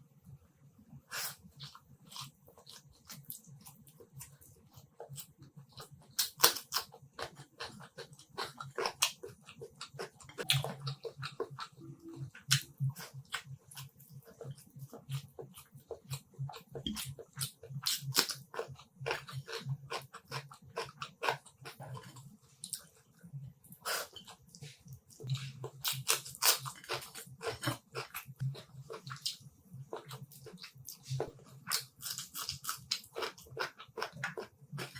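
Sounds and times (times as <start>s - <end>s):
wet chewing: 23.7s - 34.9s.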